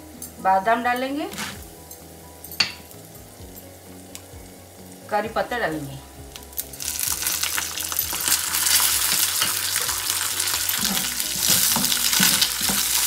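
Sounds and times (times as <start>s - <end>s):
leaves sizzling in hot oil: 0.0s - 13.0s
steel ladle scraping pan: 6.6s - 13.0s.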